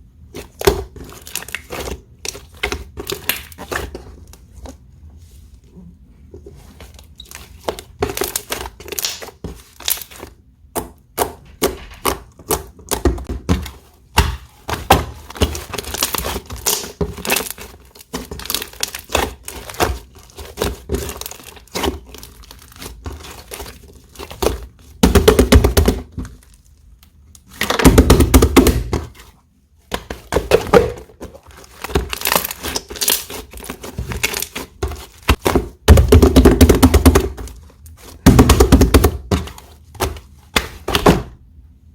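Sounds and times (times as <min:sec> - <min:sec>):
slime clicking and popping: 0:08.9 - 0:10.0.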